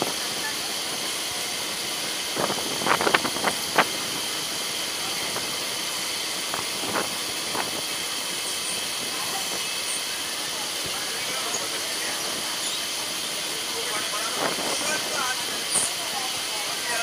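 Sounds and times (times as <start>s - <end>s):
train rolling hiss: 0.0s - 17.0s.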